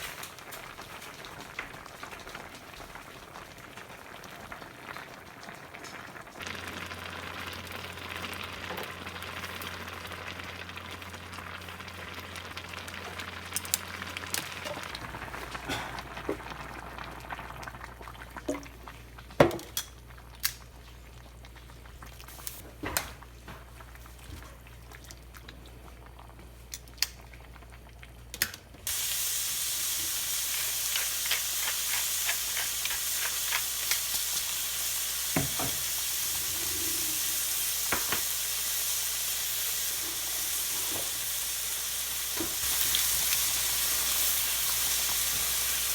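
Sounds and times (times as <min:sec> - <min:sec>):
food sizzling in hot pan: 0:28.9 - 0:45.9.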